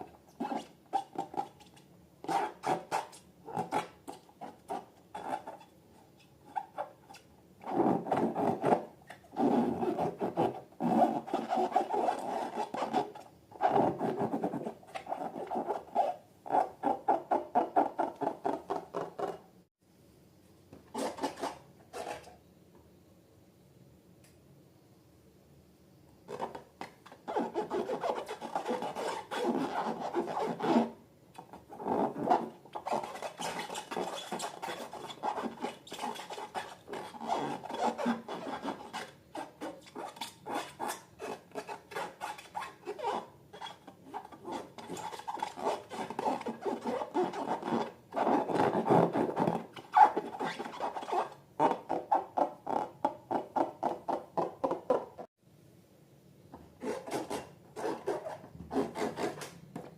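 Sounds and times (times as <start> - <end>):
slime rubbing and scraping: 27.2 - 31.0, 31.7 - 52.3.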